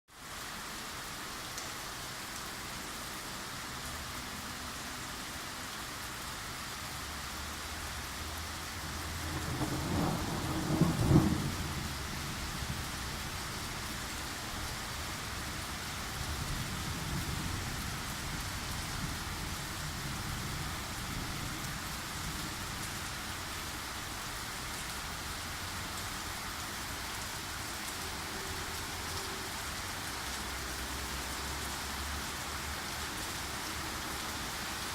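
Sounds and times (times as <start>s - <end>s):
steady rain falling: 0.1s - 34.9s
thunder rolling: 9.1s - 12.9s.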